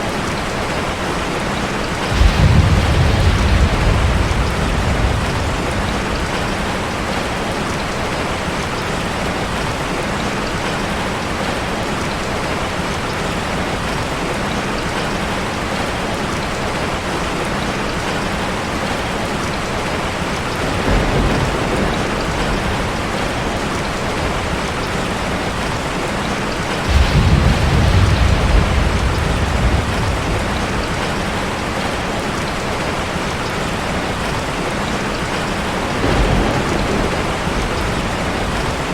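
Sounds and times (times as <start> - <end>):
deep rumbles: 26.9 - 31.4.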